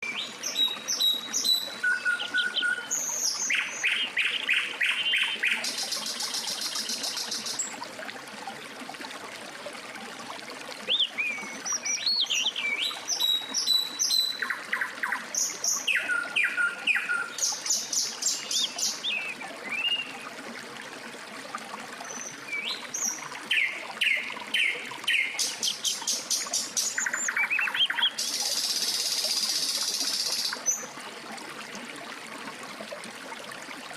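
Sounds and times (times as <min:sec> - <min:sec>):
songbirds singing: 0:10.9 - 0:20.2, 0:22.0 - 0:30.9.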